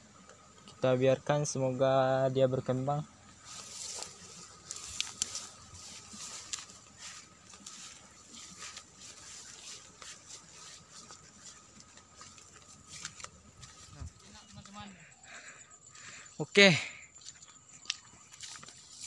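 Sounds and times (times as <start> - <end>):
crackling and rustling: 3.3 - 14.8.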